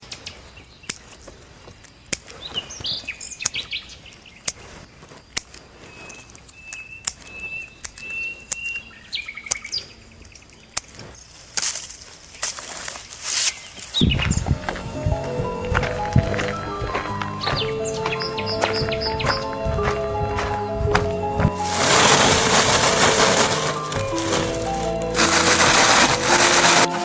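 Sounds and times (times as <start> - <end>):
small birds chirping: 12.3 - 21.5
loud rustling: 14.8 - 27.0.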